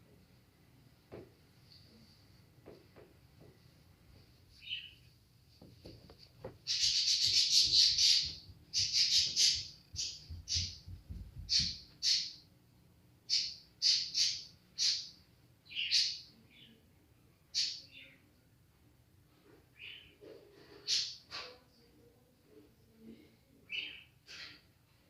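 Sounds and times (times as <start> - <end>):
bird harsh chirping calls: 6.7 - 10.8, 11.5 - 12.4, 13.3 - 16.3.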